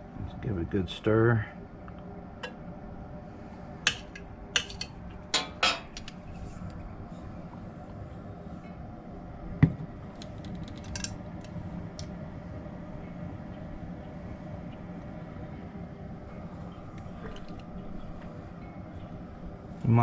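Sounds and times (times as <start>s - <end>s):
steady low hum: 0.0s - 20.0s
light clicks of utensils: 3.9s - 6.8s, 10.2s - 12.1s.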